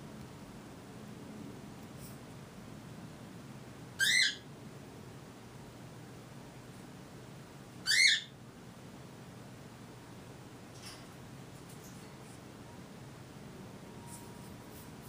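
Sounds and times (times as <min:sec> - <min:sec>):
cockatiel chirps: 0:04.0 - 0:04.5, 0:07.8 - 0:08.3.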